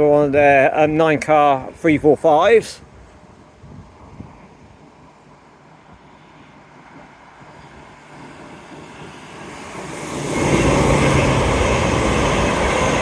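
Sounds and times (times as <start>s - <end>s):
electric train approaching: 2.8s - 13.0s.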